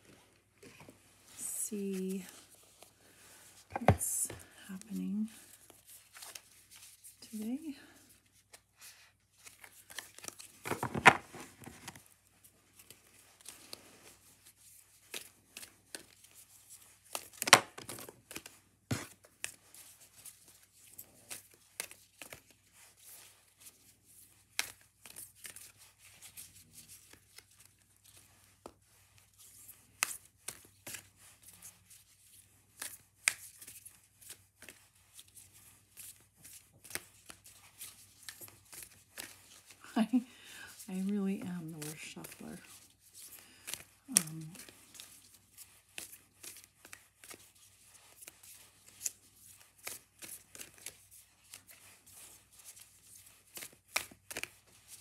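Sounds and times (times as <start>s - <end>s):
cards shuffling: 1.8s - 7.4s, 9.3s - 39.8s, 41.4s - 55.0s
cards slapping: 9.4s - 12.1s, 14.9s - 16.4s, 17.0s - 23.3s, 24.3s - 28.7s, 29.9s - 31.6s, 32.7s - 39.8s, 41.8s - 55.0s.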